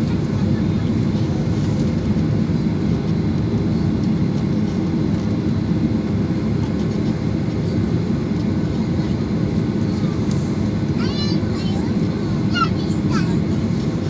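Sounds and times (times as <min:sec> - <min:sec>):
airplane cabin low rumble: 0:00.0 - 0:14.0.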